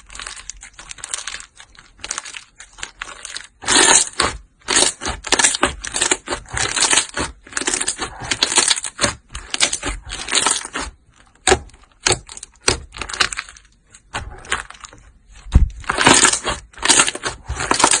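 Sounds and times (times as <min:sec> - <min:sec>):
slime crackling by hand: 0:00.0 - 0:18.0.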